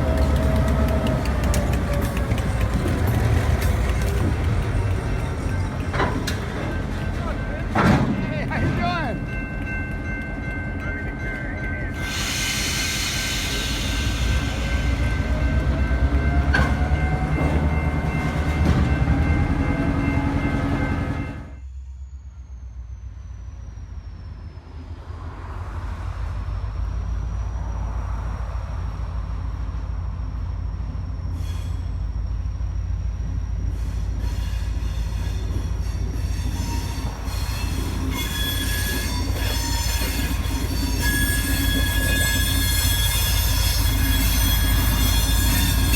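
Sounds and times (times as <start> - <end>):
train rumbling past: 0.0 - 45.9
steel wheel squeal: 10.9 - 21.0, 33.5 - 45.9.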